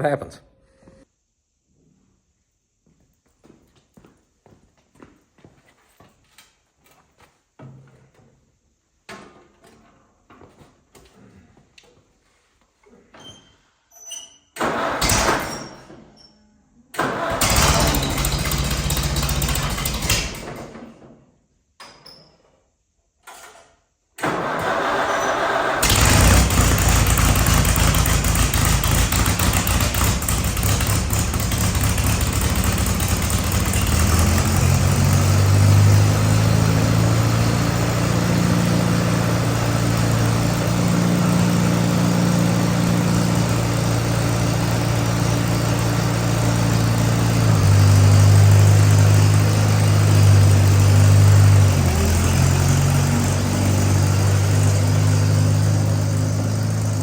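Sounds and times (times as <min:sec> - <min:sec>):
tractor engine running: 0:17.0 - 0:20.5, 0:24.3 - 0:57.0.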